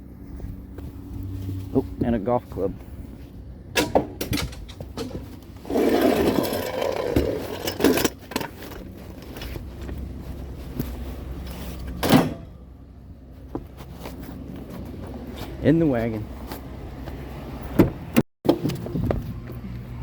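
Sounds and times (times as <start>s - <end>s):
knocks of items being loaded: 3.8s - 8.8s
rustling of items: 4.4s - 12.0s.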